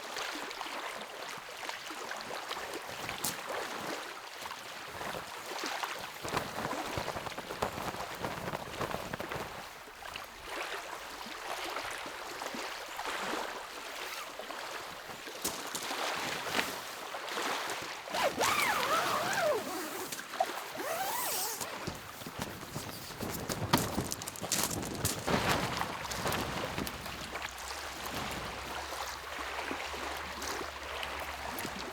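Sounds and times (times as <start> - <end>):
lake waves lapping at shore: 0.2 - 31.9.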